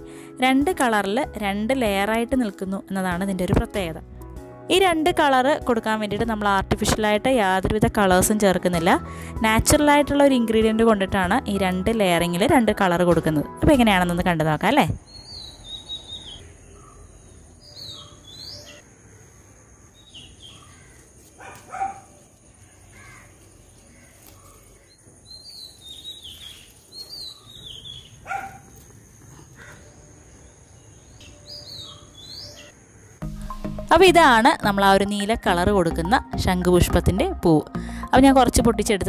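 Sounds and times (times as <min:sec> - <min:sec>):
birds chirping: 0:14.2 - 0:39.0
louder lower bird calls: 0:15.0 - 0:22.0, 0:22.8 - 0:30.0.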